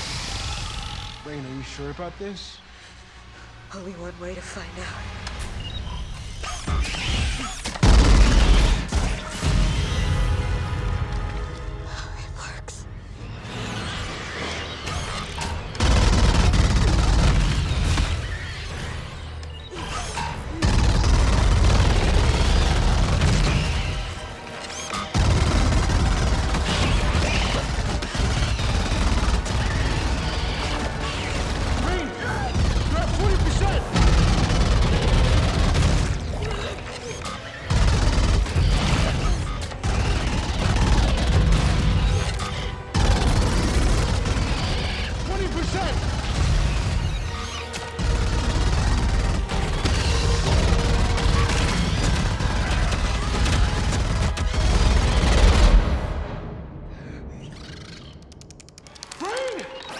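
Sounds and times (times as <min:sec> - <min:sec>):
booming automatic rifle fire: 0:07.8 - 0:09.0, 0:15.7 - 0:18.2, 0:20.6 - 0:24.1, 0:25.1 - 0:36.3, 0:37.7 - 0:47.2, 0:48.0 - 0:56.1
orchestral score: 0:08.6 - 0:15.9, 0:17.6 - 0:57.4.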